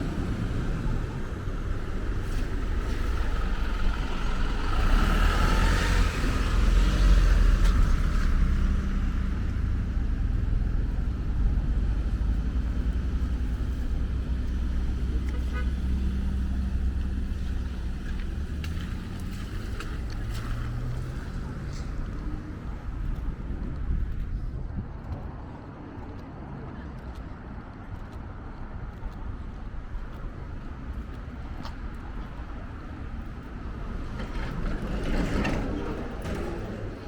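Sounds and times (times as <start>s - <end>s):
vehicle passing: 0.0s - 26.2s, 29.0s - 37.0s
traffic rumble: 0.0s - 37.0s.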